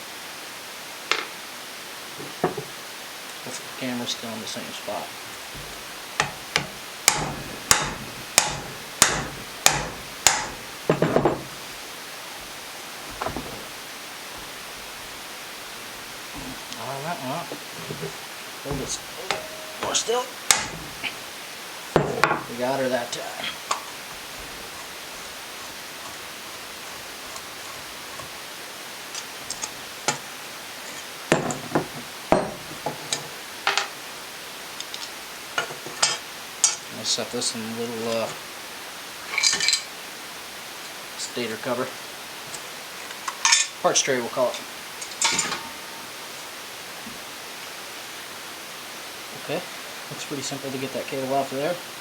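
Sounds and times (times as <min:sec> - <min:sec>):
metal tools clanking: 0:02.2 - 0:02.8, 0:03.5 - 0:21.4, 0:22.0 - 0:28.4, 0:29.0 - 0:34.0, 0:39.3 - 0:39.9, 0:43.3 - 0:46.0
metal parts ticking: 0:05.4 - 0:11.7, 0:17.4 - 0:21.2
short metal rattle: 0:05.4 - 0:11.8, 0:17.7 - 0:21.2
hammer striking impact driver: 0:05.6 - 0:11.6, 0:18.7 - 0:21.1.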